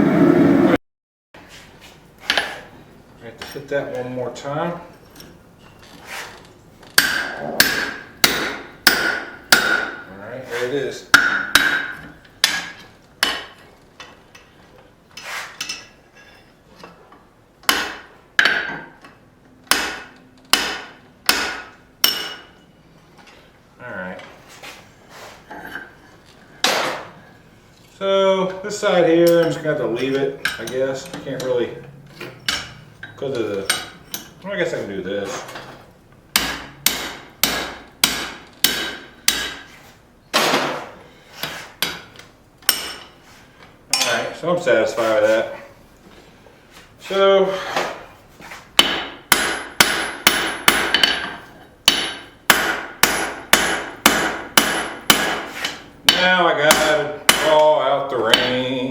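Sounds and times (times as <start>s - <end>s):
hammer striking steel on anvil: 7.0s - 10.1s, 11.1s - 13.6s, 17.7s - 18.9s, 19.7s - 22.6s, 33.6s - 34.4s, 36.3s - 39.7s, 42.7s - 43.1s, 48.8s - 57.6s.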